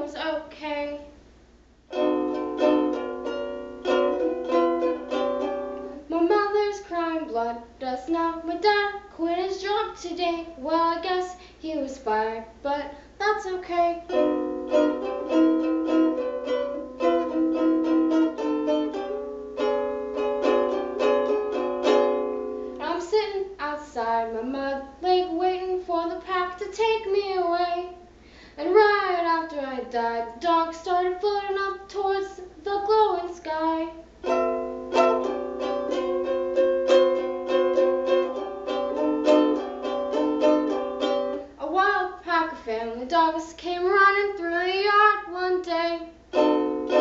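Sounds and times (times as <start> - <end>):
ukulele plucked notes: 1.9 - 7.4, 13.7 - 23.1, 34.2 - 42.6, 46.3 - 47.0.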